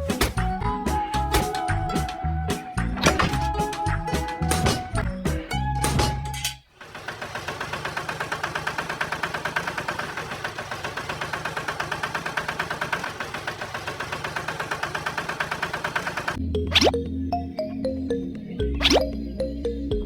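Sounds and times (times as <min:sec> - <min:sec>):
small tractor engine chugging: 0:06.7 - 0:16.4.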